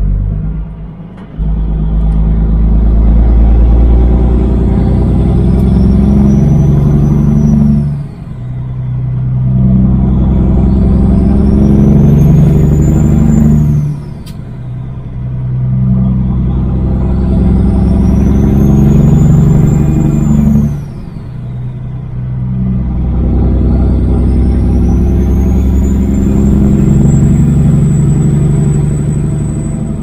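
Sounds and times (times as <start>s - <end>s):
truck diesel engine accelerating: 0.0s - 30.0s
turbo whistle: 4.4s - 9.0s, 9.8s - 14.8s, 16.4s - 21.8s, 23.3s - 30.0s.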